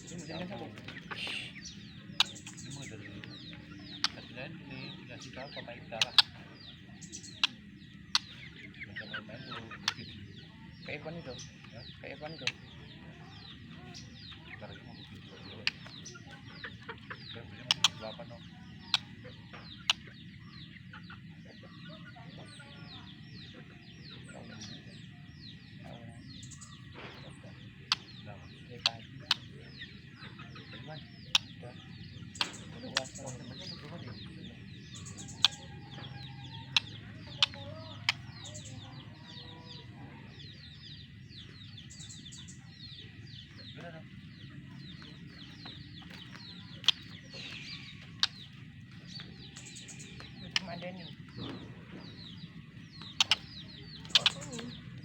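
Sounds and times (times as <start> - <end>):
small birds chirping: 0.0 - 55.0
sharp clicks: 52.9 - 54.8.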